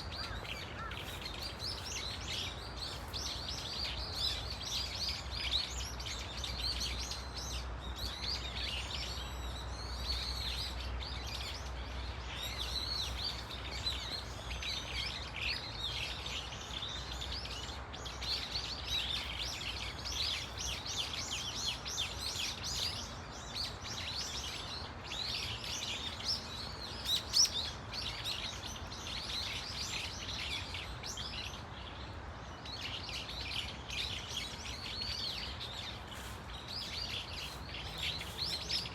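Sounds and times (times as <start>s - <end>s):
flock of birds calling: 0.0s - 4.9s, 32.8s - 38.9s.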